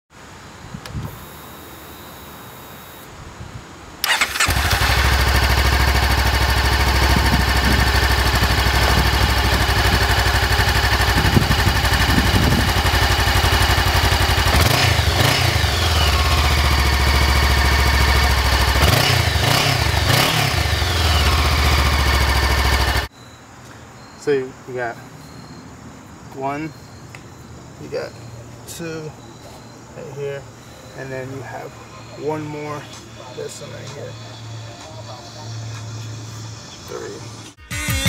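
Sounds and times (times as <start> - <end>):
engine revving: 4.0 - 23.1
motorcycle engine starting: 4.0 - 23.1
motorcycle engine idling: 4.1 - 23.1.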